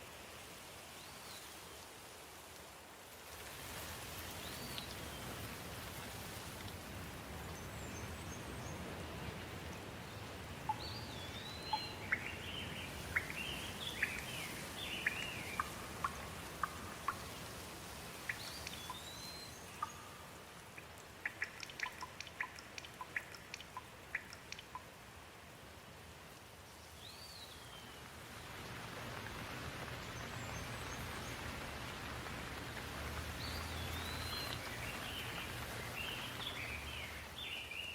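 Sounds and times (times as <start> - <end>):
steady rain falling: 0.0 - 37.9
sharp drips: 10.5 - 25.2, 28.7 - 37.9
birds whistling and chirping: 10.7 - 16.8, 33.4 - 37.9.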